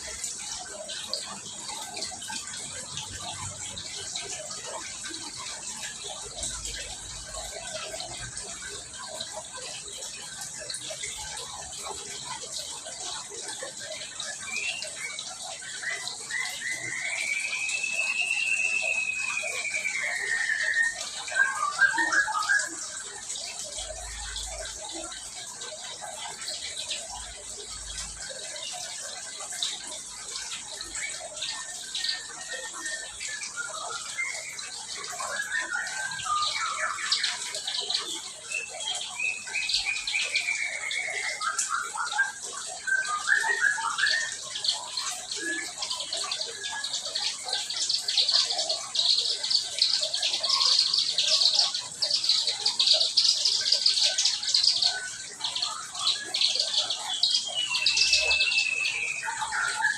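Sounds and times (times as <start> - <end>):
songbirds chirping: 0.0 - 59.9
bird whistle rising and falling: 14.2 - 23.7, 30.3 - 47.7, 54.9 - 59.9.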